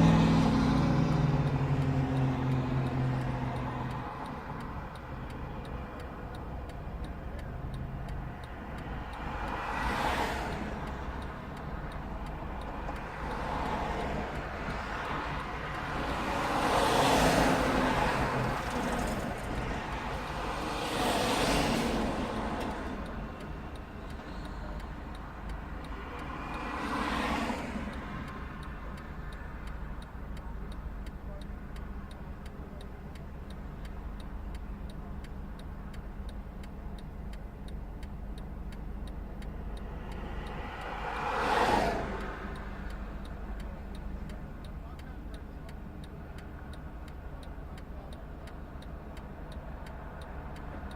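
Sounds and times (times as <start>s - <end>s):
low engine hum: 0.0s - 50.9s
vehicles passing: 0.0s - 50.9s
faint regular ticking: 0.2s - 50.9s.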